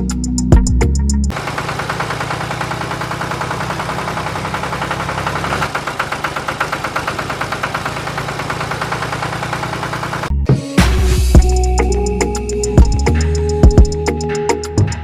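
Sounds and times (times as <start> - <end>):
tractor engine idling: 0.0 - 10.3.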